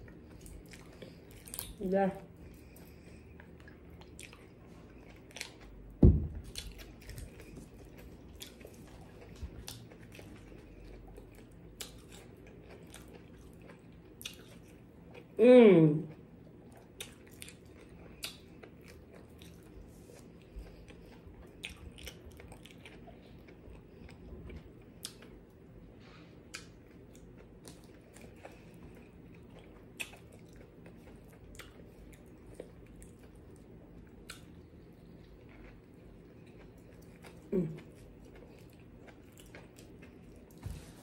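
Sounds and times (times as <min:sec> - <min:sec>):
chewing fried food: 0:00.0 - 0:15.4, 0:16.0 - 0:41.0.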